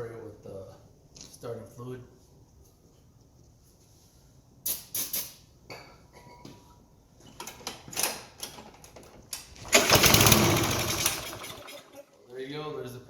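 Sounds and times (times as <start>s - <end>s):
handling hisses and clatters: 3.7s - 5.4s
small engine running loudly: 9.8s - 11.6s.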